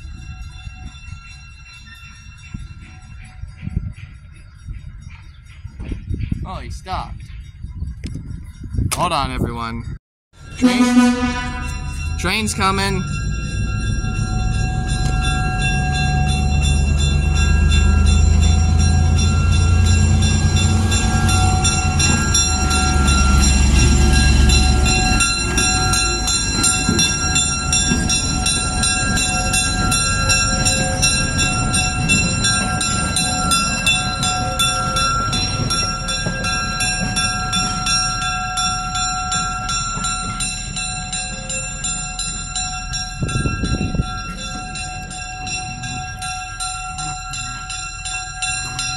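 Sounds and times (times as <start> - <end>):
crossing warning bell ringing: 0.0 - 48.9
locomotive engine rumble: 10.4 - 48.9
train wheels clattering over rails: 13.3 - 48.9.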